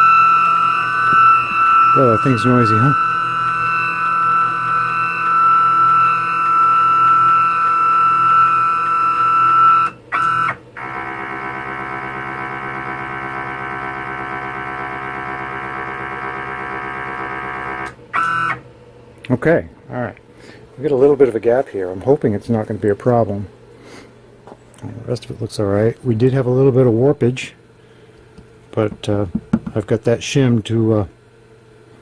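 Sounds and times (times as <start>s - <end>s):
stepper motors whining: 0.0s - 18.6s.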